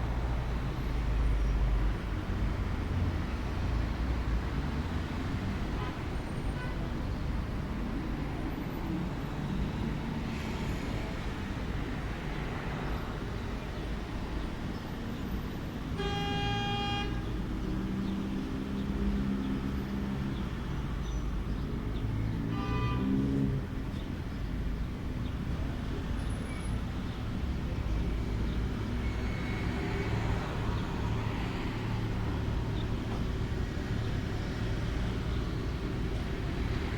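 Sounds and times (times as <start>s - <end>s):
road traffic rumble: 0.0s - 36.9s
car horn: 16.0s - 17.2s, 22.5s - 23.2s.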